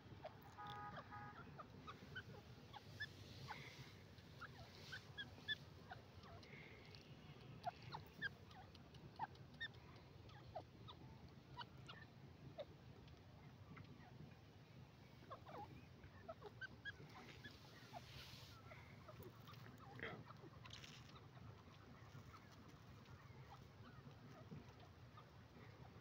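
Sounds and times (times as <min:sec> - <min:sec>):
low background hum: 0:00.0 - 0:26.0
faint bird chirps: 0:00.2 - 0:12.8, 0:13.4 - 0:26.0.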